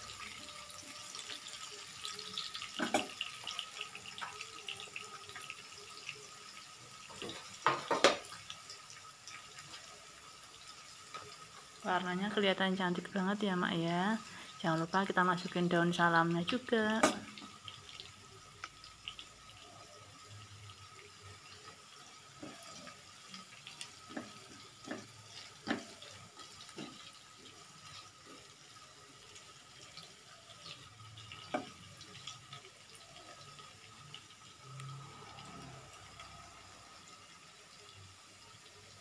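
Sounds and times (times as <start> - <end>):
food hissing in oil: 0.0 - 39.0.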